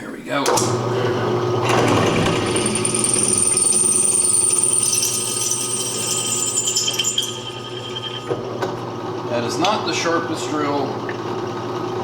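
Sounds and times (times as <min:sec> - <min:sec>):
drill motor hum: 0:00.5 - 0:09.4
drill bit squealing: 0:02.1 - 0:08.7.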